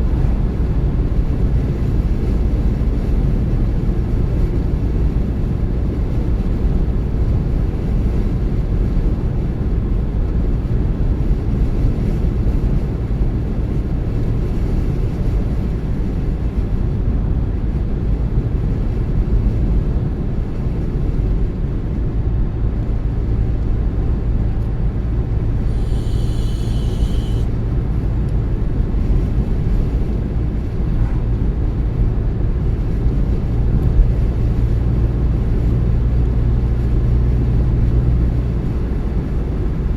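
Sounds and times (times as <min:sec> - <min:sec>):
car engine and tyres rumbling: 0:00.0 - 0:39.9
high-pitched tone: 0:25.7 - 0:27.5.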